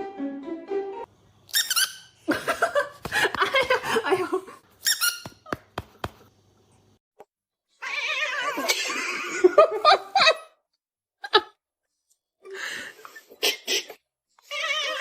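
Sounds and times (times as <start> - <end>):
music: 0.0 - 1.1.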